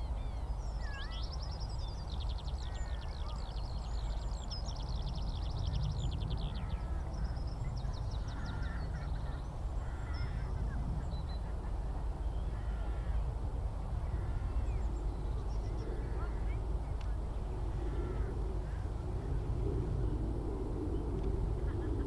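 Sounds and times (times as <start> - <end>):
steady low rumble: 4.8 - 22.0.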